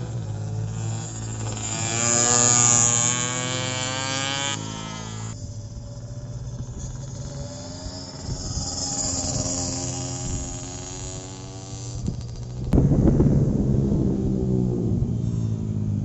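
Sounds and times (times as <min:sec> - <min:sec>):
motorcycle passing at speed: 0:00.0 - 0:16.0
low engine hum: 0:05.3 - 0:16.0.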